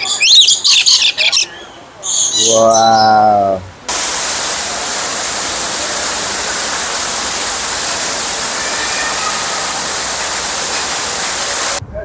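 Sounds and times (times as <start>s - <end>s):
waterfall roaring: 3.9s - 11.8s.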